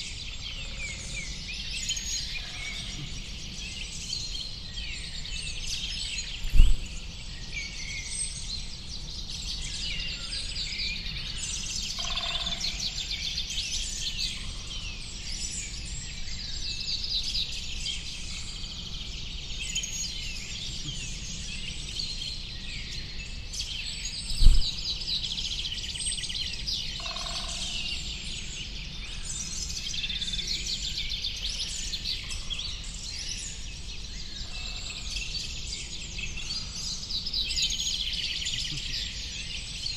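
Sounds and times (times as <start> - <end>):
songbirds chirping and twittering: 0.0 - 39.9
short low thumps: 6.5 - 7.0, 24.4 - 24.9.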